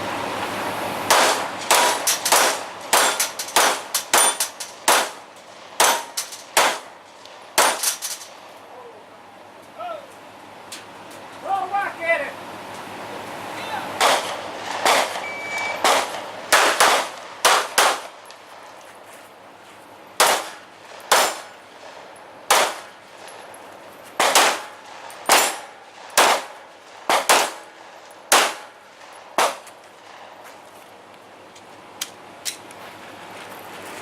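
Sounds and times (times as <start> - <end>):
gunshots: 1.1 - 5.2, 5.8 - 6.9, 7.6 - 7.9, 14.0 - 18.2, 20.2 - 21.5, 22.5 - 22.9, 24.2 - 27.7, 28.3 - 28.8, 29.4 - 30.2
metallic clangs of steel targets: 1.1 - 8.4, 20.2 - 21.6, 24.2 - 29.8.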